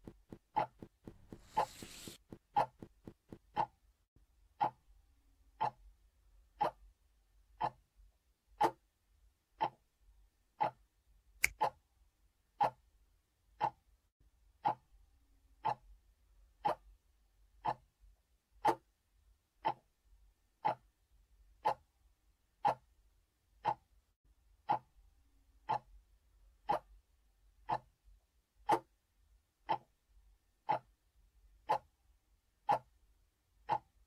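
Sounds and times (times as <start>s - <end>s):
clock ticking: 0.0s - 3.8s, 4.6s - 4.9s, 5.6s - 5.9s, 6.6s - 7.9s, 9.6s - 10.0s, 10.6s - 11.8s, 13.6s - 13.8s, 15.6s - 15.9s, 16.6s - 17.0s, 17.6s - 17.9s, 19.6s - 20.0s, 20.6s - 21.0s, 23.6s - 23.9s, 24.6s - 25.0s, 25.6s - 26.0s, 26.6s - 27.0s, 27.6s - 28.0s, 29.6s - 30.0s, 30.6s - 31.0s, 32.7s - 33.0s, 33.6s - 34.0s.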